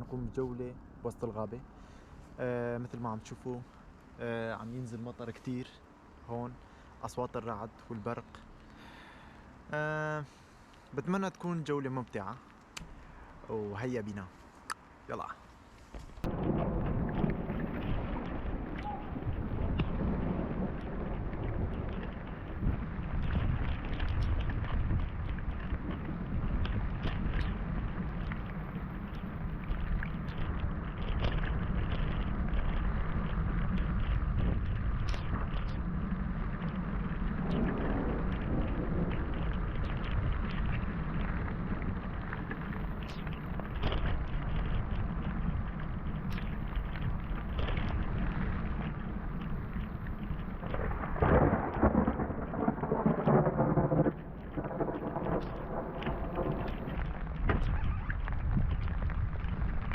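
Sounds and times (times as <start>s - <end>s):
close raindrops ticking: 0.0s - 59.9s
heavy rain falling: 16.2s - 59.9s
low thunder rumble: 16.2s - 59.9s.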